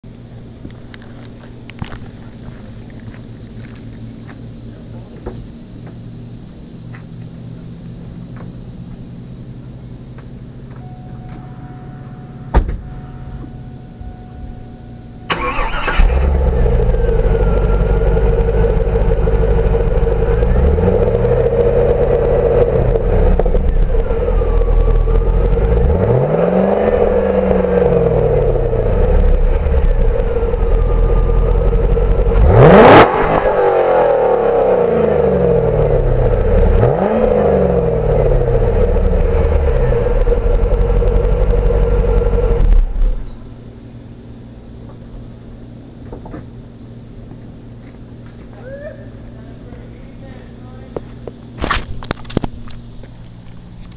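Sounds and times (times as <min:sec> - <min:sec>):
faint steady tones: 0:00.1 - 0:26.0
car engine idling and revving: 0:00.1 - 0:45.8.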